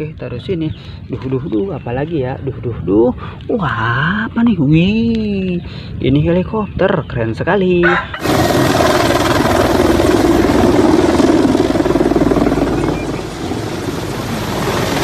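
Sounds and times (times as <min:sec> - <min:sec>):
helicopter rotor chop: 0:08.0 - 0:15.0.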